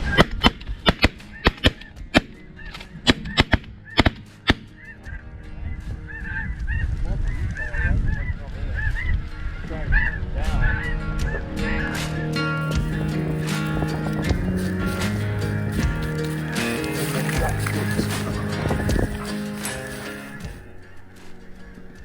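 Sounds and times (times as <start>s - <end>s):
geese honking: 6.1s - 21.1s.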